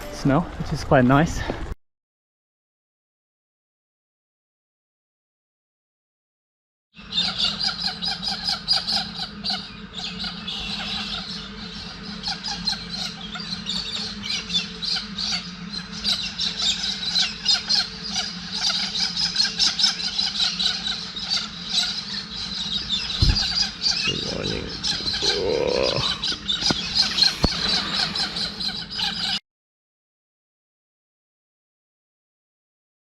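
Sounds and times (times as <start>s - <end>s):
birds chirping and calling: 7.0s - 29.4s
steady low hum: 7.0s - 29.4s.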